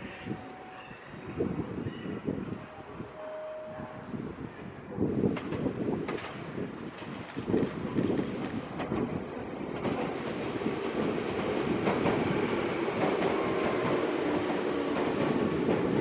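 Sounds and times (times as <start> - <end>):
faint train whine: 0.0 - 5.2, 6.2 - 16.0
electric train wheels rumbling: 5.0 - 16.0.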